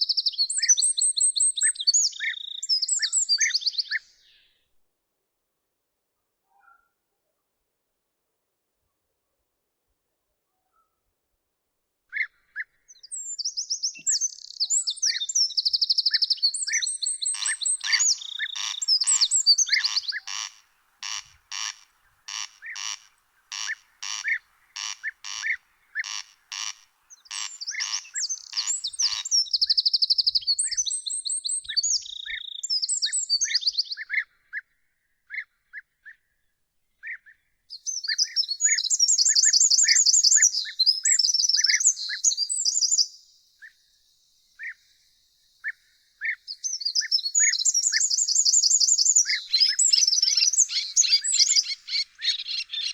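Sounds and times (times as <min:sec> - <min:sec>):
songbirds warbling: 0:00.0 - 0:04.6, 0:12.1 - 0:35.8, 0:37.1 - 0:52.9
short bird chirps: 0:12.1 - 0:34.2, 0:37.1 - 0:52.9
short harsh bird calls: 0:12.1 - 0:34.2, 0:45.6 - 0:52.9.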